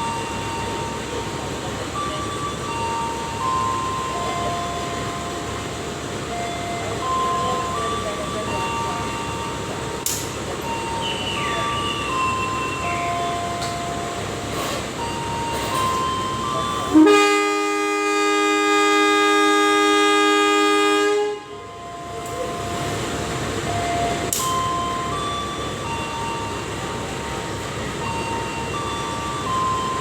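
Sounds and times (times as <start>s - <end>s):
train rumbling: 0.0s - 30.0s
locomotive horn blast: 16.9s - 21.7s.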